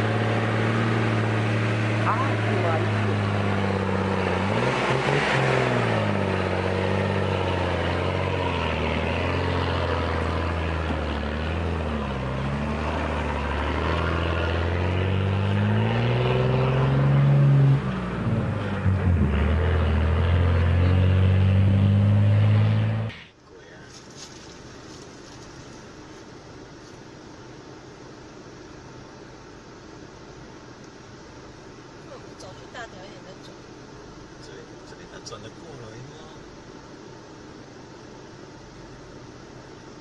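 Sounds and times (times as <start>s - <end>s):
truck engine revving: 0.0s - 23.4s.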